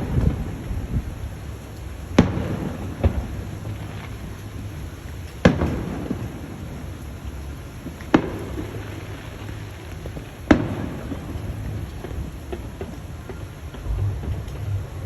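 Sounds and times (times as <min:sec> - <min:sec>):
fireworks booming: 0:00.0 - 0:15.0
rolling rumble: 0:00.0 - 0:15.0.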